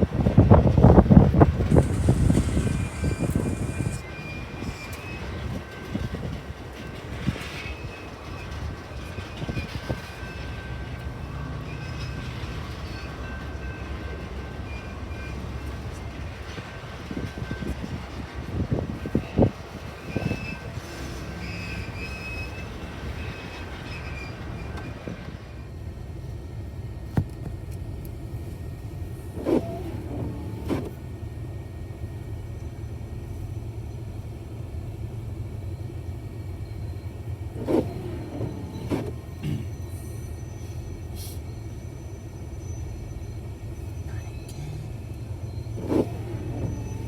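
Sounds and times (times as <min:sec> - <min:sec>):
low vehicle rumble: 0:00.0 - 0:07.3.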